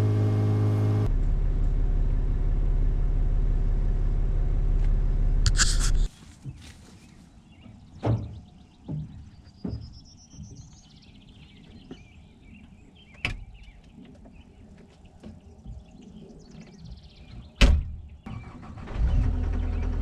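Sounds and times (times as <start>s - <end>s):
diesel engine starting and running: 0.0s - 5.6s, 18.2s - 20.0s.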